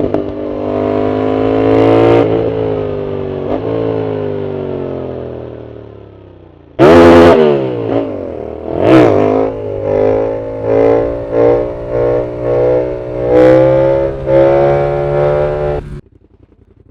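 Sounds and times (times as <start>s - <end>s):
motorcycle engine throttle blips: 7.1s - 16.9s.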